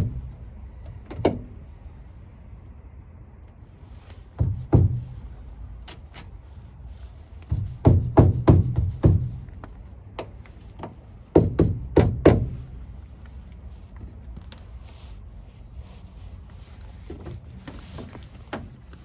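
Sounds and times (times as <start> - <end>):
clunks and handling noise: 0.0 - 1.7, 4.0 - 6.4, 16.8 - 19.0
heavy knocks: 4.4 - 5.3, 7.5 - 9.4, 11.4 - 12.7.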